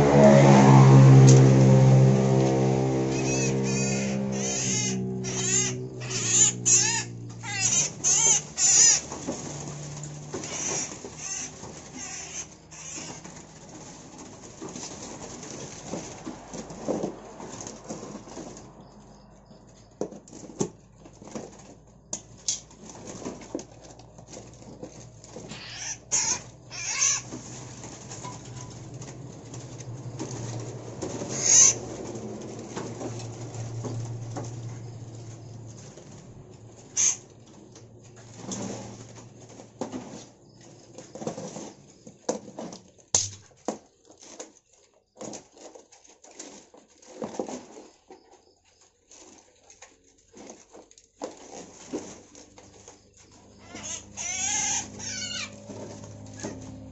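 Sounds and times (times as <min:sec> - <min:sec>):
rustles: 0:00.0 - 0:56.9
birds scrabbling inside a cage: 0:00.5 - 0:56.9
songbirds flapping wings: 0:03.0 - 0:44.4.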